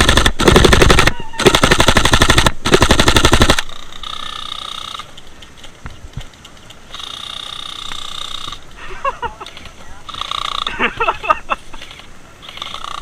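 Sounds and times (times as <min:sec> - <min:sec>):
airsoft gun firing bursts: 0:00.0 - 0:03.7.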